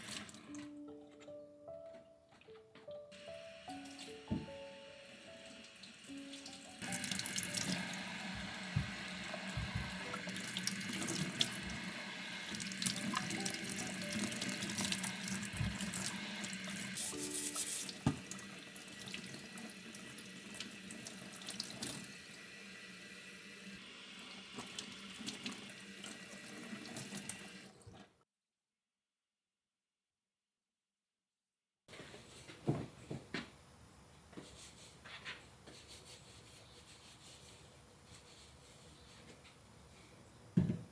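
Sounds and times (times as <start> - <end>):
tap water running into sink: 0.0 - 0.7, 3.2 - 28.1.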